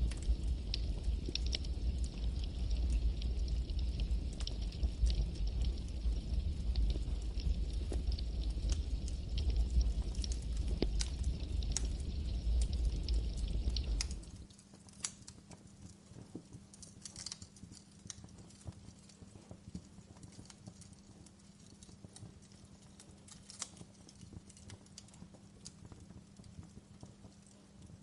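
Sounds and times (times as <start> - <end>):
campfire crackling: 0.0 - 28.0.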